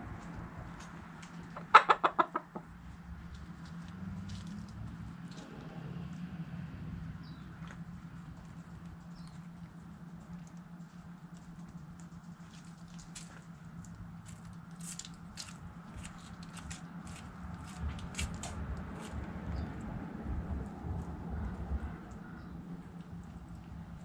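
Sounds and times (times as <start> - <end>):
chickens pecking food: 1.2 - 2.7, 7.6 - 22.2.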